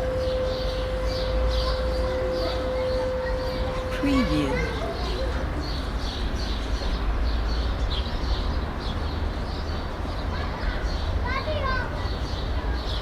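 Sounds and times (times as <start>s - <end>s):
distant traffic rumble: 0.0s - 10.4s.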